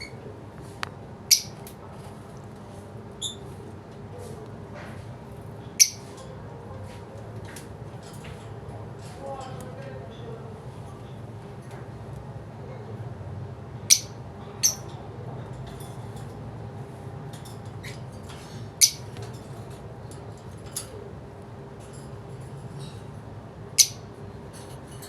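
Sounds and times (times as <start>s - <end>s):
lovebirds chirping: 1.3s - 1.6s, 5.8s - 6.1s.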